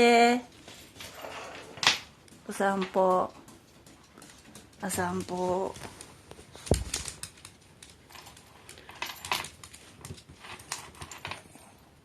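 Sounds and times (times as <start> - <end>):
dog claws clicking on hard floor: 0.6 - 11.7.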